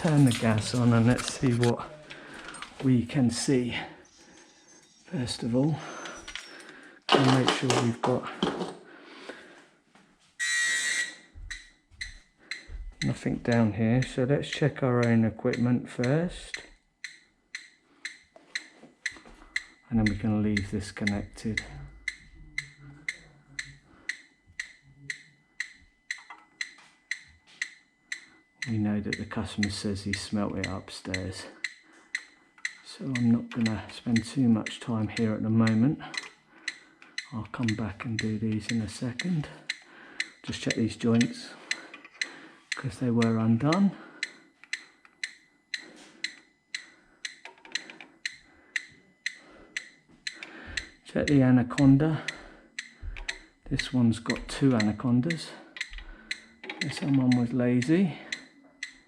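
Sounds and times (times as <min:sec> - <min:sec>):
gas detector beeping ticks: 0:00.0 - 0:08.2, 0:10.4 - 0:59.0.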